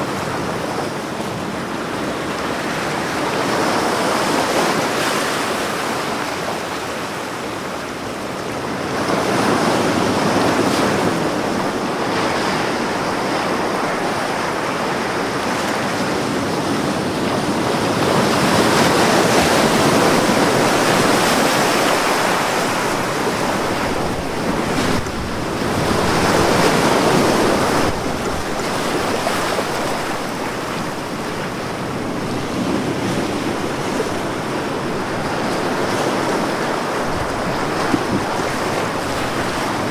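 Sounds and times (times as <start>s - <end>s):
ocean waves breaking on beach: 0.0s - 39.9s
wind noise: 8.6s - 39.9s.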